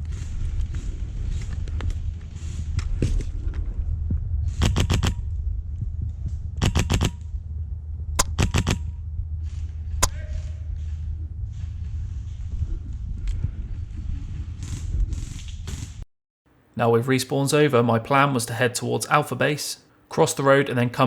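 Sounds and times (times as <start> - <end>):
low rumble: 0.0 - 16.0
airsoft gun bursts: 6.6 - 7.1.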